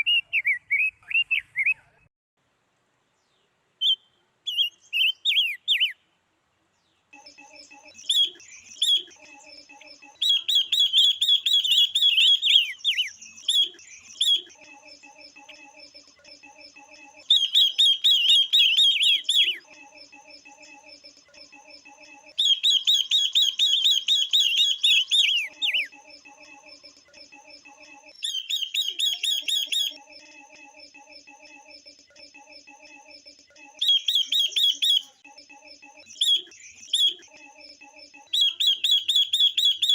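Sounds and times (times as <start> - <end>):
birds chattering calls: 7.2 - 15.6, 17.2 - 19.7, 22.4 - 25.9, 28.2 - 30.0, 33.8 - 35.2
low pulsing bird call: 9.8 - 14.6, 17.2 - 19.7, 22.4 - 25.9.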